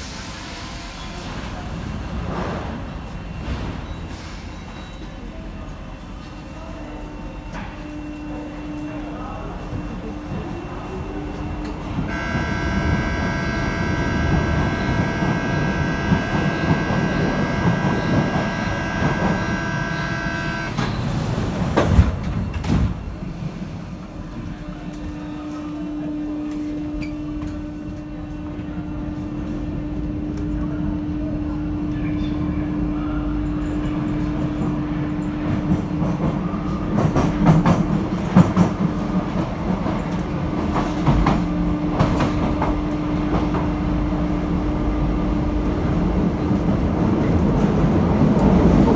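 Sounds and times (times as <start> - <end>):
train running rumble: 5.6 - 48.9
high electric whine: 12.1 - 20.8.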